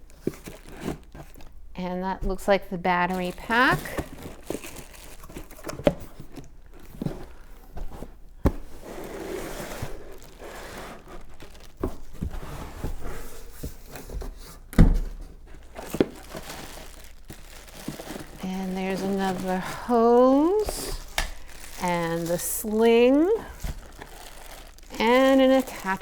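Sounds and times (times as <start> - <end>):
packaging rustling: 0.0 - 26.0.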